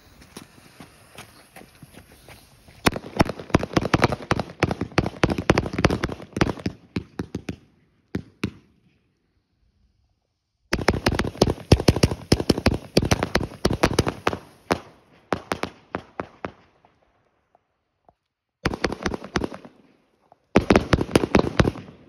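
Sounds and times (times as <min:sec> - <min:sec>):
fireworks popping and crackling: 0:00.0 - 0:07.6, 0:10.7 - 0:16.6, 0:18.7 - 0:22.0.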